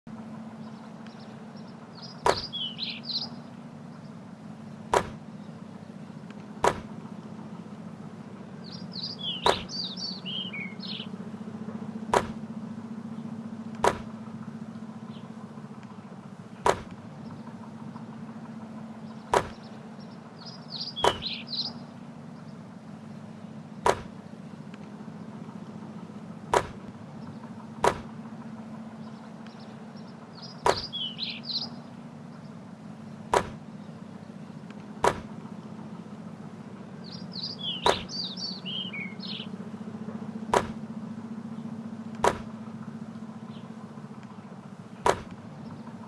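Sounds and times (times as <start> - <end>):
birds chirping: 0.1 - 46.0
steady low hum: 0.1 - 46.0
basketball hits and bounces: 2.2 - 2.5, 4.9 - 5.2, 6.6 - 6.9, 9.4 - 9.7, 12.1 - 12.4, 13.8 - 14.1, 16.6 - 17.0, 19.3 - 19.6, 21.0 - 21.3, 23.8 - 24.2, 26.5 - 27.0, 27.8 - 28.1, 30.6 - 30.9, 33.3 - 33.6, 35.0 - 35.3, 37.8 - 38.1, 40.5 - 40.8, 42.2 - 42.5, 45.0 - 45.4.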